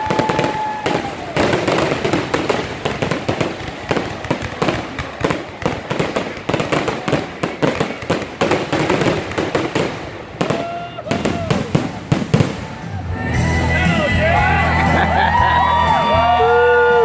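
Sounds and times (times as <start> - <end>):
fireworks bangs and crackles: 0.0 - 13.1.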